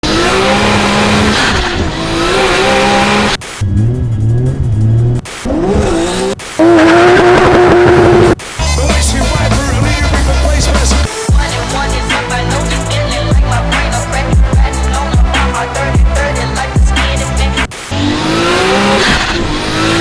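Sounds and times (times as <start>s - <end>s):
car engines revving: 0.0s - 8.4s, 17.4s - 20.0s.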